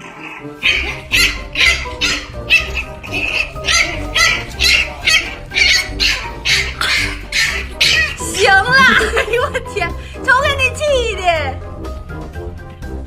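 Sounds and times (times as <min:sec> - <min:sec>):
background music: 0:00.0 - 0:13.0
small dog barking: 0:00.6 - 0:09.0.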